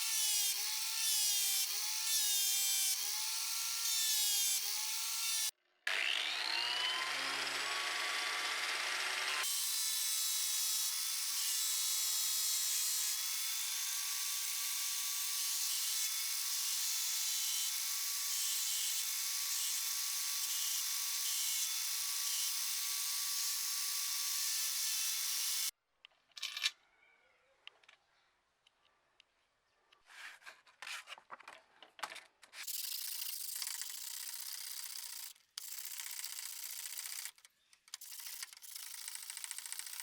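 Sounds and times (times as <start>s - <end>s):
power tool whining: 0.0s - 25.7s.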